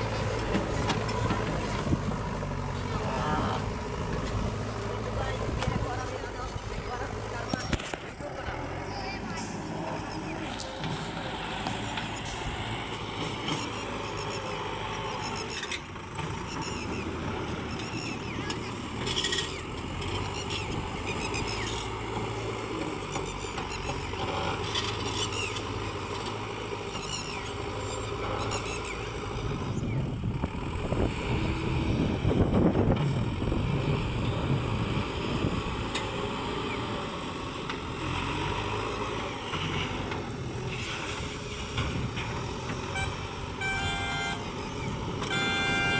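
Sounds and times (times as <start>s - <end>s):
faint voices: 0.0s - 15.9s
road vehicle engines running: 0.0s - 45.9s
vehicle passing close: 0.0s - 45.9s.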